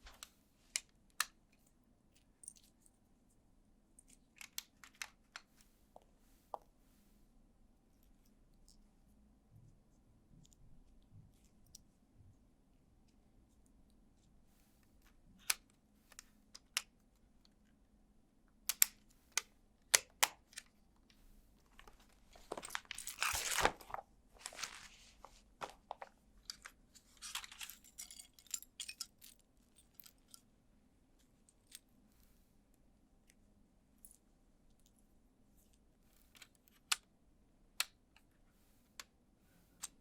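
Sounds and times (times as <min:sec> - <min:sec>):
plastic parts clicking together: 0:04.0 - 0:05.5, 0:18.7 - 0:20.8
plastic parts rustling and crunching: 0:21.7 - 0:29.2.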